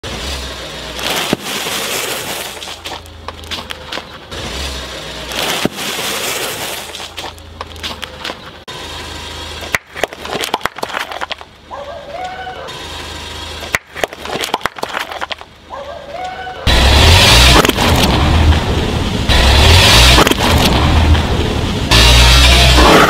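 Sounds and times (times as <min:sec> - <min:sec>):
low car engine hum: 0:00.0 - 0:23.0
plastic cups cracking under tyre: 0:09.7 - 0:11.5, 0:13.7 - 0:15.6.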